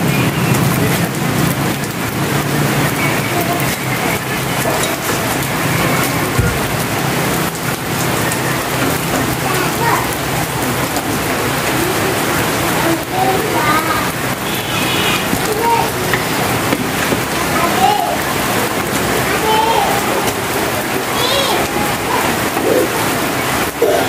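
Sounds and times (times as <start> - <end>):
rain hissing: 0.0 - 24.0
knock: 6.4 - 6.7.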